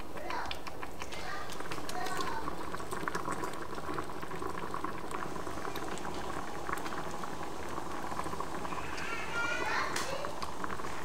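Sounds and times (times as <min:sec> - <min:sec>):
sauce bubbling in frying pan: 0:00.0 - 0:11.0.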